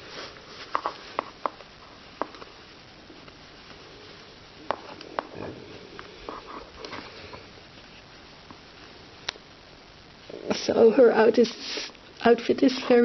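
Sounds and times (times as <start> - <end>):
fabric rustling: 0.0 - 2.6.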